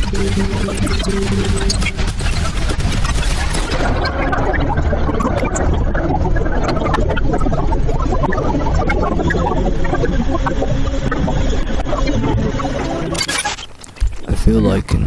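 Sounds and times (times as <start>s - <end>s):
sharp clicks and rattles: 0.0s - 4.3s
low rumble: 0.0s - 13.1s.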